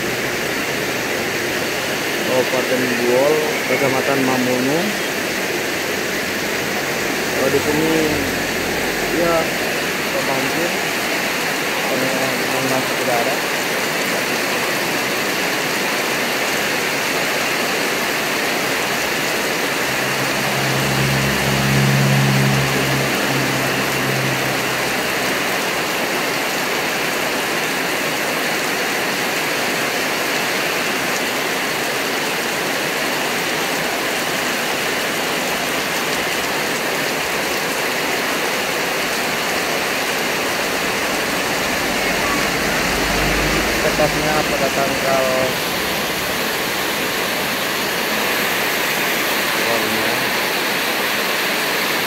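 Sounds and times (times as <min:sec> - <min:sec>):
heavy rain pouring: 0:00.0 - 0:52.0
passing vehicle engine hum: 0:04.7 - 0:11.8, 0:18.5 - 0:26.5, 0:37.1 - 0:50.5.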